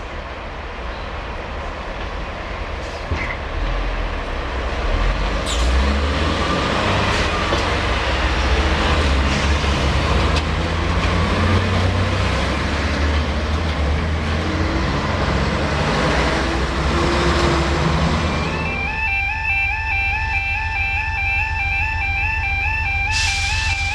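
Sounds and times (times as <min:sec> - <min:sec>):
train wheels rumbling on rails: 0:00.0 - 0:18.9.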